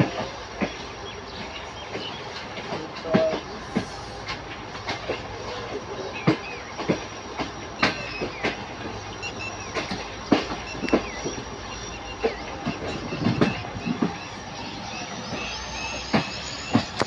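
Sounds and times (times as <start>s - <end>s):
train rumbling on rails: 0.0s - 17.0s
wheels clacking over rail joints: 0.0s - 17.0s.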